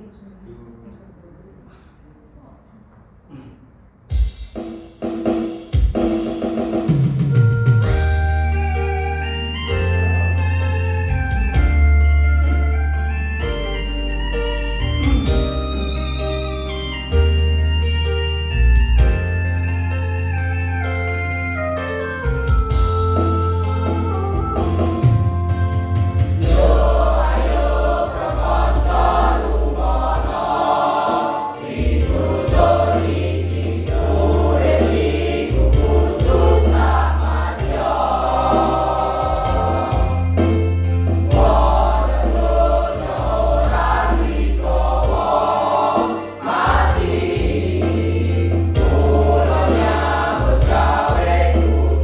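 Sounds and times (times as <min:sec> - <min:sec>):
keyboard accompaniment: 0:04.1 - 0:52.0
choir singing: 0:26.4 - 0:40.6, 0:41.3 - 0:52.0.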